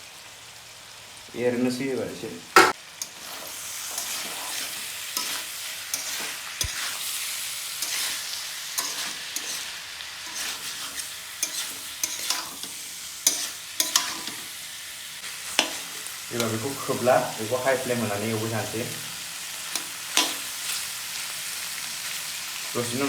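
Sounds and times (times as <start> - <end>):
curry sizzling in a pan: 0.0 - 23.0
utensil scraping a pan: 2.6 - 14.6.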